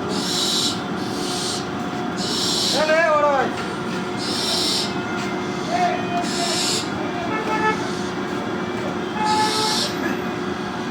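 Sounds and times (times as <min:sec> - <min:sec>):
barn owl screeching: 0:00.1 - 0:03.0, 0:04.2 - 0:06.9, 0:09.2 - 0:10.0.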